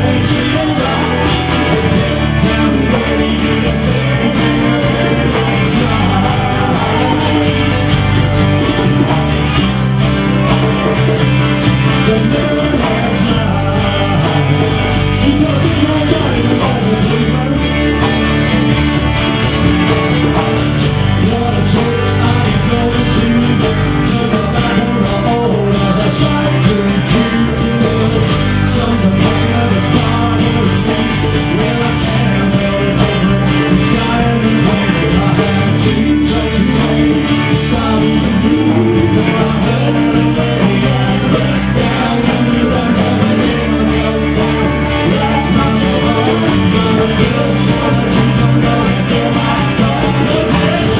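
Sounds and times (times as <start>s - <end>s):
person singing: 0.0s - 50.9s
rock band playing live: 0.0s - 50.9s.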